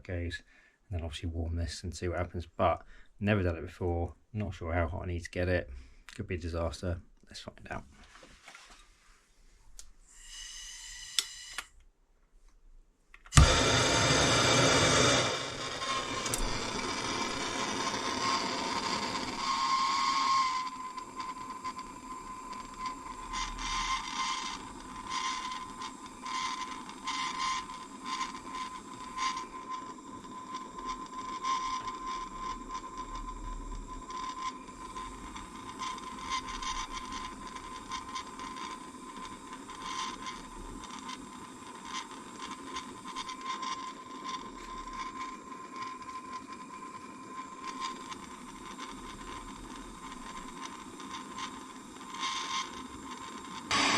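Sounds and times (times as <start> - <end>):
blowtorch hissing: 10.1 - 11.7, 13.3 - 53.9
thin whistle: 19.3 - 25.6.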